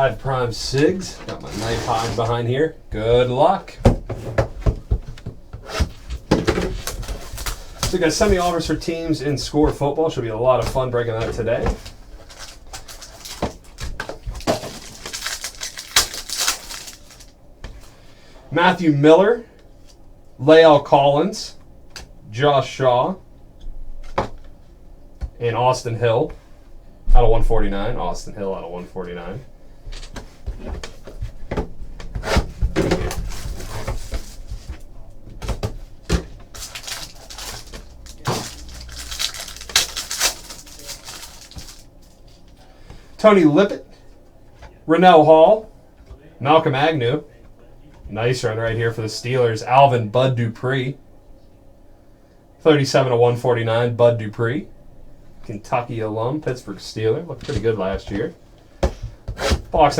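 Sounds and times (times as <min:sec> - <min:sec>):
packaging rustling and crinkling: 0:01.1 - 0:02.3, 0:04.6 - 0:09.5, 0:10.6 - 0:17.4, 0:29.9 - 0:42.6.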